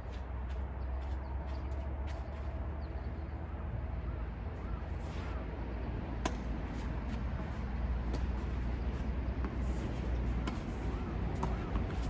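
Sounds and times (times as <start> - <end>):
tennis balls struck by rackets: 6.2 - 12.0.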